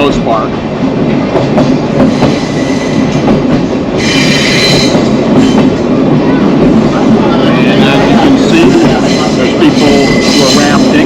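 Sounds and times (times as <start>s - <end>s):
train wheels clacking on rails: 0.0s - 11.0s
high-pitched wheel squeal: 4.0s - 5.6s.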